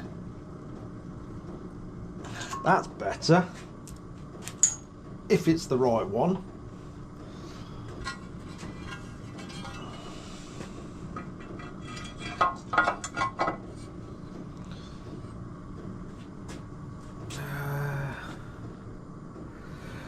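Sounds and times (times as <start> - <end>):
steady low hum: 0.0 - 20.0
metal parts and tools clinking: 4.5 - 4.9, 8.0 - 10.0.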